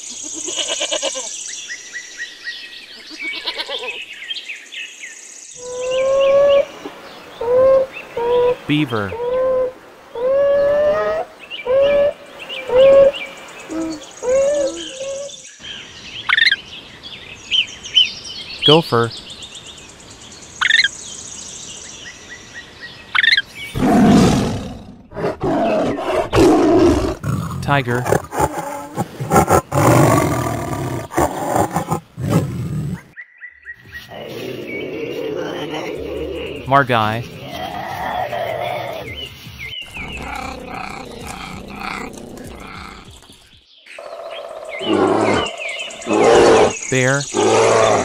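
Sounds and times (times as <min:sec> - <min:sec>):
tiger growling: 0:23.7 - 0:33.2, 0:34.0 - 0:43.4, 0:44.0 - 0:48.0.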